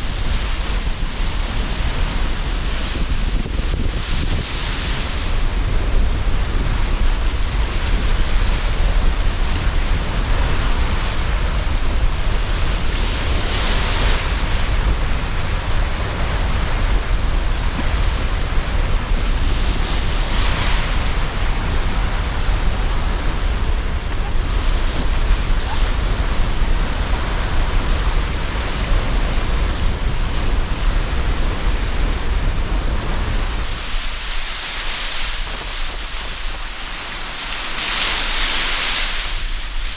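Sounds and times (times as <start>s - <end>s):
sea surf washing ashore: 0.0s - 39.9s
wind rumble on microphone: 0.0s - 39.9s.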